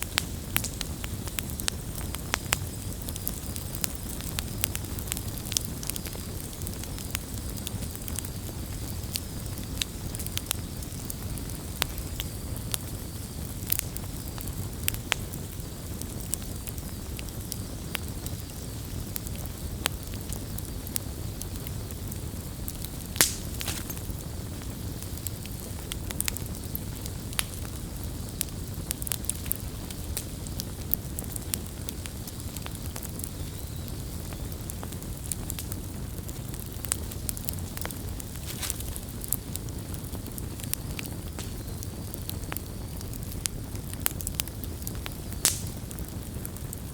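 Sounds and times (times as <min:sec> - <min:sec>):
campfire crackling and popping: 0:00.0 - 0:46.9.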